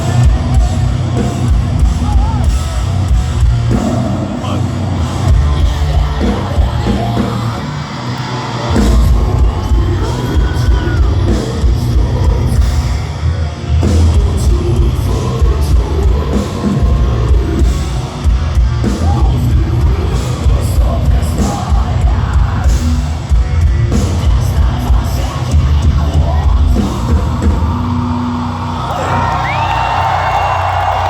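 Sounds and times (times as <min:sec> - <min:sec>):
distorted guitars: 0:00.0 - 0:31.0
heavy pounding drums and bass: 0:00.0 - 0:31.0
screamed vocals: 0:28.8 - 0:31.0.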